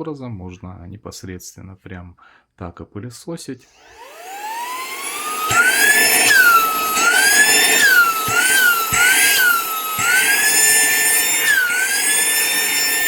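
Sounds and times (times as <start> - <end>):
handheld vacuum motor whine: 3.7 - 13.0.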